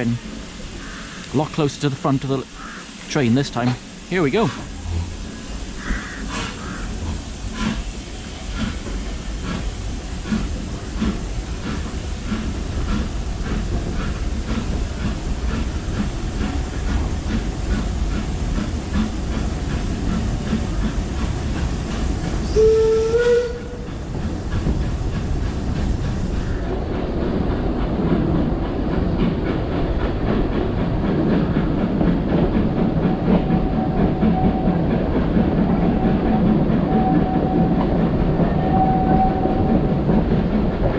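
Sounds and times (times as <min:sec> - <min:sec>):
steam locomotive chuffing: 0:00.0 - 0:40.9
train rumble and wheel clatter: 0:00.0 - 0:40.9
steam whistle: 0:22.4 - 0:23.9, 0:38.6 - 0:39.7.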